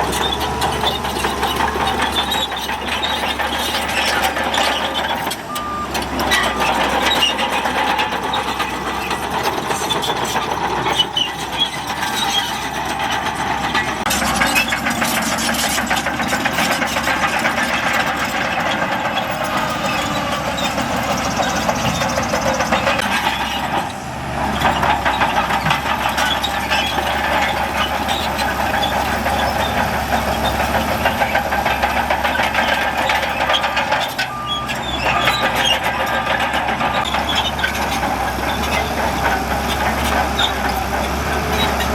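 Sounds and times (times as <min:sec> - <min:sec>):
dense clatter: 0:00.0 - 0:41.9
heavy diesel machinery running: 0:00.0 - 0:41.9.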